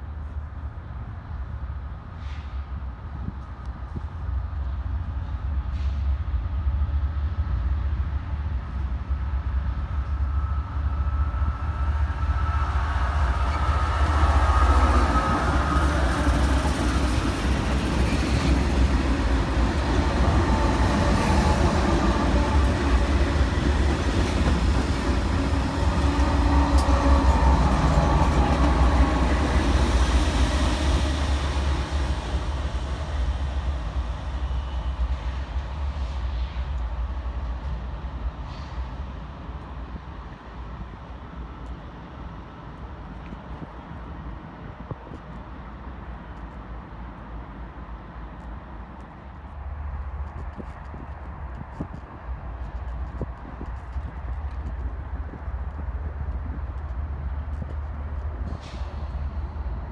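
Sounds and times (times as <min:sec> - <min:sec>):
diesel locomotive engine rumble: 0:00.0 - 0:59.9.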